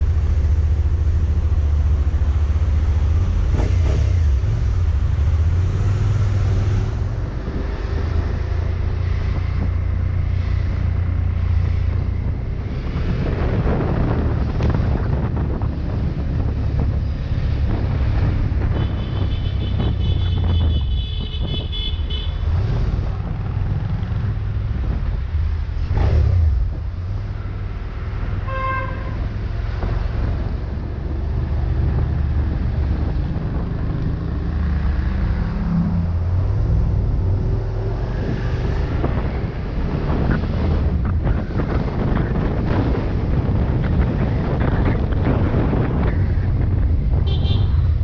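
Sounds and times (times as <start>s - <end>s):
car road and wind rumble: 0.0s - 48.0s
vehicle horn honking: 18.8s - 22.4s, 28.4s - 29.2s, 47.2s - 47.8s.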